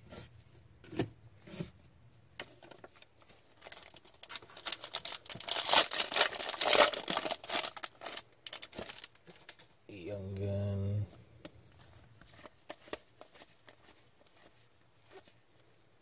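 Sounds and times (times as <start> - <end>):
cards and wrapper rustling: 2.4 - 9.8, 11.5 - 15.5.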